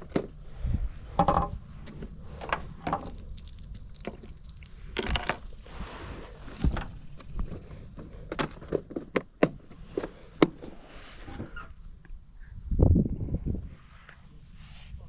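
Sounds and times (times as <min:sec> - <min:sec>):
fishing tackle clinking: 0:01.2 - 0:01.6.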